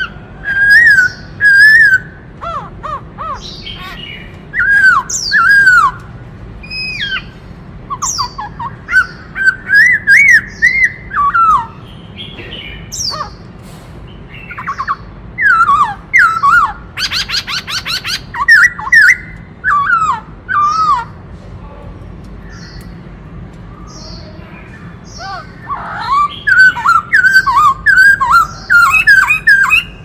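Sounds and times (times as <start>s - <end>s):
bird singing whistled phrases: 0.4s - 2.2s, 3.3s - 6.0s, 7.9s - 11.8s, 14.4s - 21.1s, 25.1s - 30.0s.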